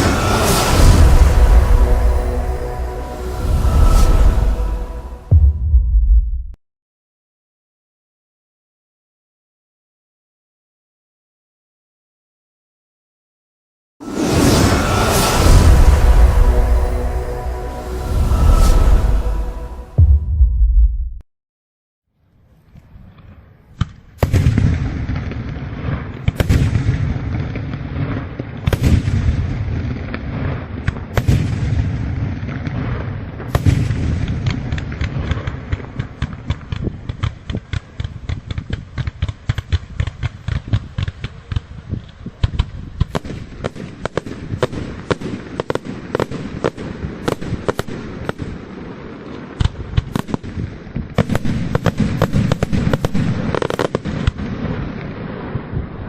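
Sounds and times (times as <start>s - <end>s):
rapid firework crackling: 0.0s - 1.5s, 34.4s - 48.7s, 49.5s - 54.8s
firework shells booming: 49.6s - 54.8s.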